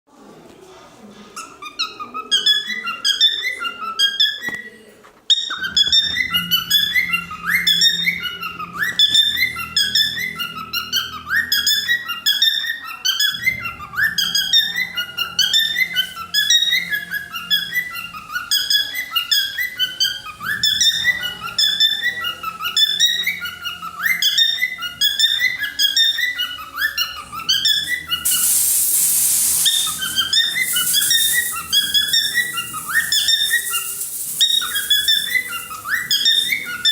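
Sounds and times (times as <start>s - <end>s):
cockatiel whistled chirps: 22.7s - 36.9s
loud hissing noise: 28.2s - 36.9s.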